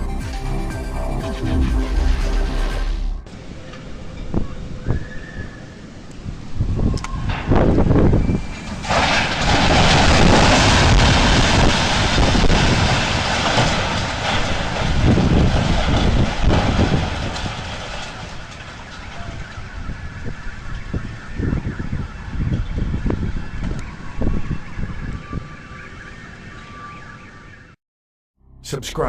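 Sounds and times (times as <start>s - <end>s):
crane collapsing with crash: 1.4s - 3.6s, 7.1s - 24.6s.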